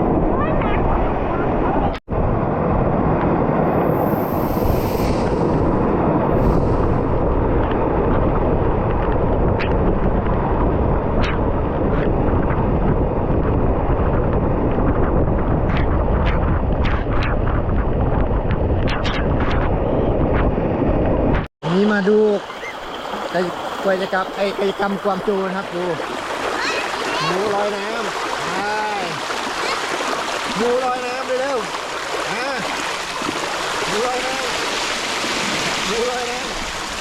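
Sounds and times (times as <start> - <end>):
waterfall roaring: 21.6 - 37.0.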